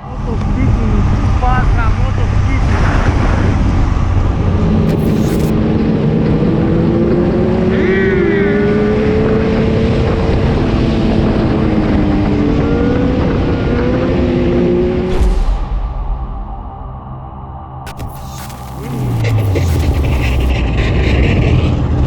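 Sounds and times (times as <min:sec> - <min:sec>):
road and wind noise: 0:00.0 - 0:04.9, 0:05.5 - 0:15.5.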